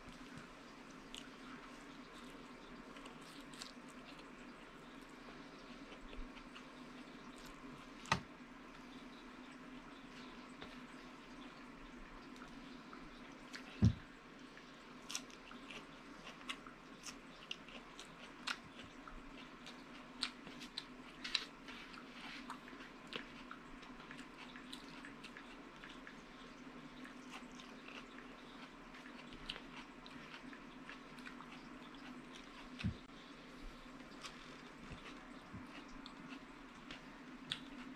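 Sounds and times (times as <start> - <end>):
steady low hum: 0.0 - 37.9
wet chewing: 1.0 - 4.6, 15.0 - 26.4, 27.0 - 37.9.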